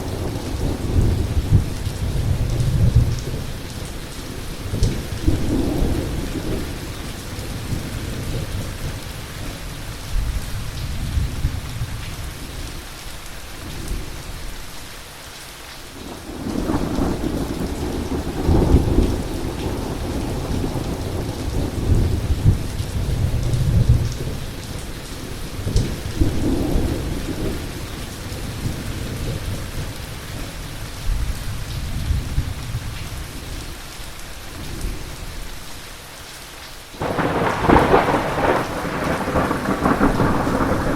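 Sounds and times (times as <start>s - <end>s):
heavy rain: 0.0s - 40.9s
rolling thunder: 16.1s - 24.6s, 37.0s - 40.9s.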